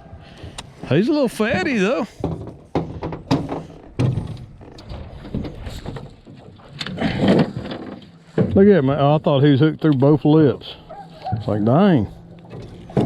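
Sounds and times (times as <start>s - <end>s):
irregular knocks and thumps: 0.1s - 8.7s
fish flopping against boat: 1.5s - 8.7s, 12.1s - 13.0s.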